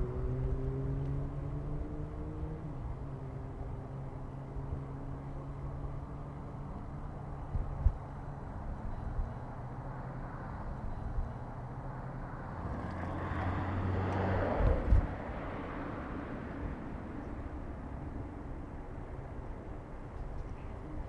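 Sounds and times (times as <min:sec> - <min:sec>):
low street hum: 0:00.0 - 0:21.0
car passing close by: 0:12.3 - 0:17.6.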